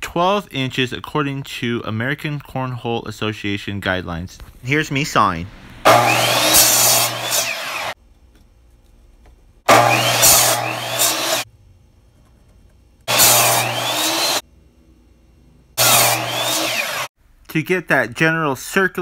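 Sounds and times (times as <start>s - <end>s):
miter saw cutting wood: 5.9s - 8.0s, 9.7s - 11.5s, 13.1s - 14.4s, 15.8s - 17.1s
motor hum: 12.5s - 14.4s, 15.8s - 17.1s.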